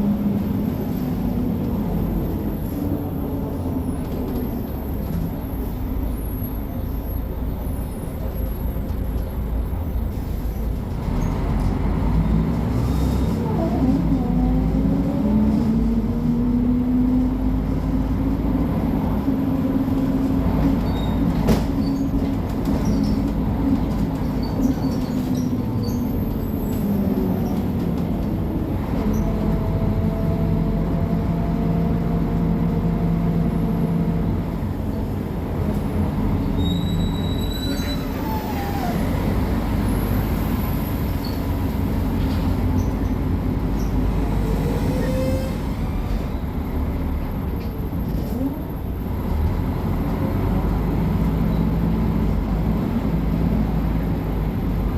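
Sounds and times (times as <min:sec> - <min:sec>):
bus diesel engine drone: 0:00.0 - 0:54.9.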